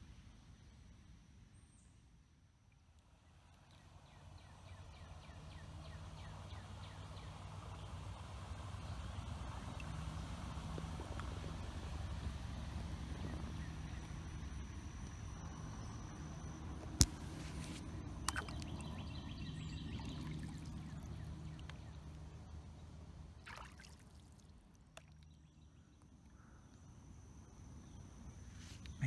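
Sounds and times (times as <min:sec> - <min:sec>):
river water trickling and lapping: 0:16.9 - 0:26.4.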